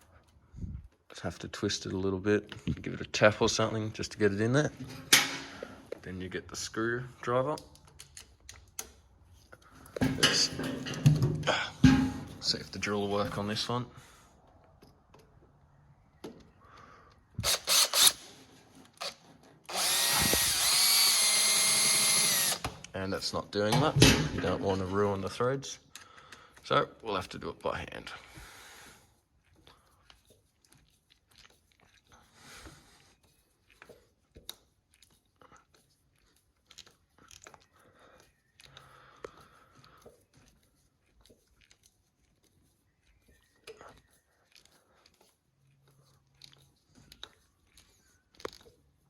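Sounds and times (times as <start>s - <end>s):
screwdriver clicks and scrapes: 17.4s - 22.7s.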